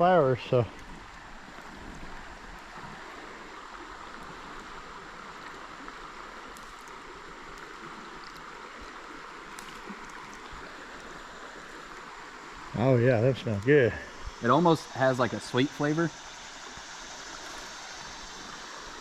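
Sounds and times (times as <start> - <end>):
creek water running: 0.0 - 19.0
faint ticks: 5.4 - 11.2.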